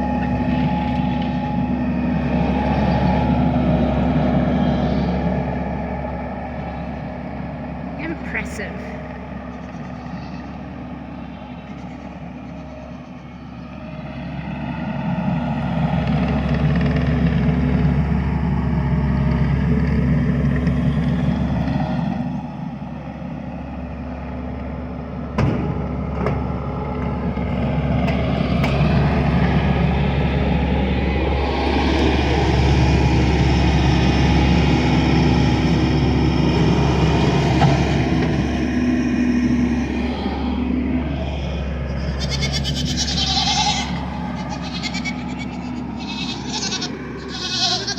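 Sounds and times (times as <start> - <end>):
vehicle engine running: 0.0 - 47.9.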